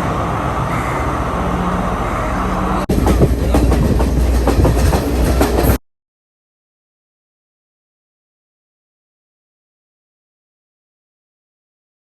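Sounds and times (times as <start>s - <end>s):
train rumble on rails: 0.0s - 5.8s
train wheels clattering over track: 0.0s - 5.8s.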